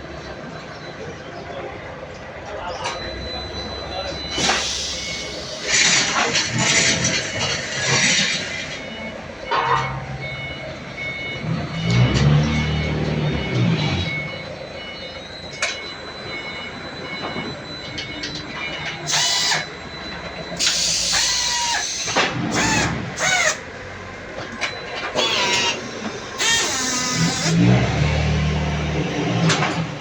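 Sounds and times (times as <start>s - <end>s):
brick stacking machine running: 4.2s - 10.0s, 20.5s - 23.6s, 24.3s - 30.0s
squealing whine: 11.4s - 23.7s, 24.7s - 29.8s.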